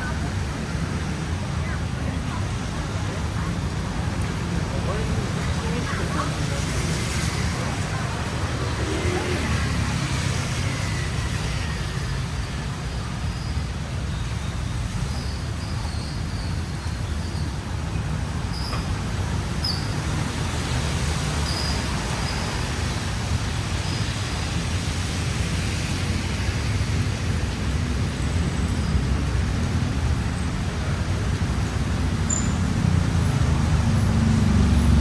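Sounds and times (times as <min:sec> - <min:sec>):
traffic rumble: 0:00.0 - 0:35.0.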